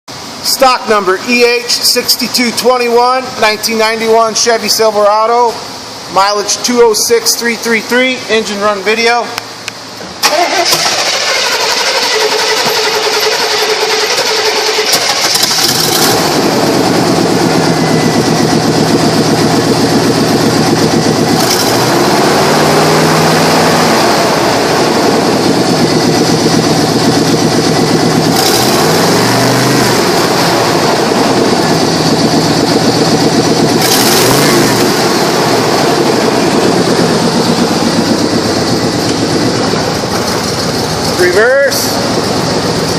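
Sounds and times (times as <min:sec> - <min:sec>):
pickup engine starting and revving: 0:09.6 - 0:42.9.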